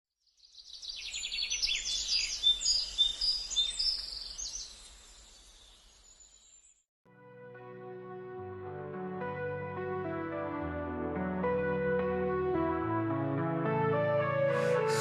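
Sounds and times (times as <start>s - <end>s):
bird song: 0.2s - 6.8s.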